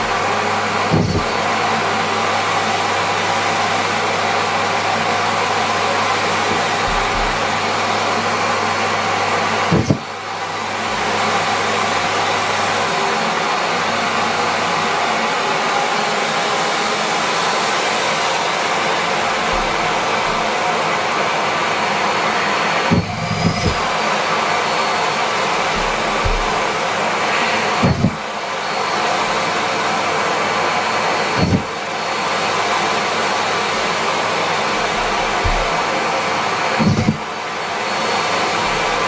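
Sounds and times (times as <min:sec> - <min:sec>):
vacuum cleaner running: 0:00.0 - 0:39.0
brief knock: 0:00.9 - 0:01.3, 0:25.8 - 0:26.6.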